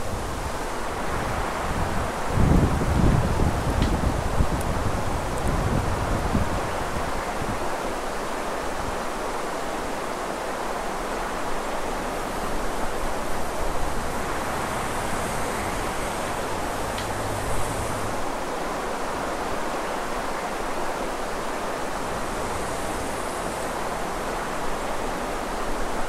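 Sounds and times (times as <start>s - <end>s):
traffic: 0.0s - 6.3s, 12.2s - 19.5s, 21.6s - 26.0s
wind: 0.0s - 26.0s
car engine hum approaching: 13.7s - 18.2s.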